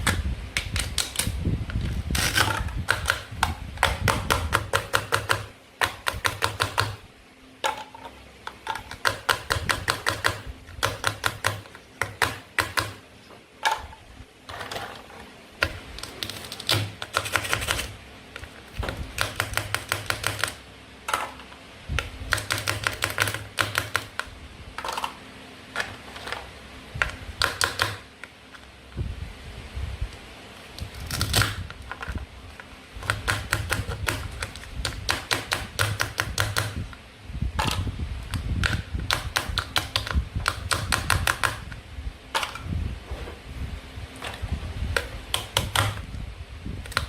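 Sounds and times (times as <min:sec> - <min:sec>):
toy food pieces clicking and tapping: 0:02.8 - 0:07.0, 0:19.1 - 0:20.6, 0:33.0 - 0:36.8, 0:37.6 - 0:41.7.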